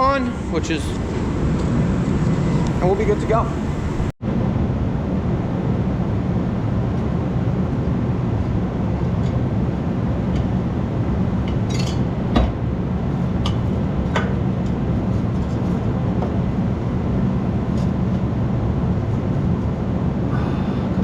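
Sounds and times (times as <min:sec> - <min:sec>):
steady low rumble: 0:00.0 - 0:11.5.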